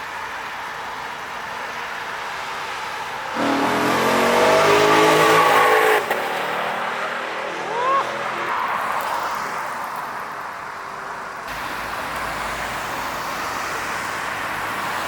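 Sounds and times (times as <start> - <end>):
engine revving hard: 3.4 - 8.4.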